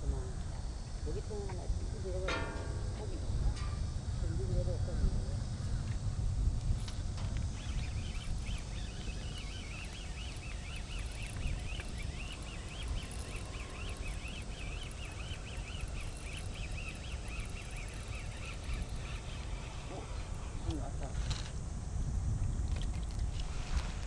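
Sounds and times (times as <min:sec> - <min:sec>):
small birds chirping: 0:07.4 - 0:21.6.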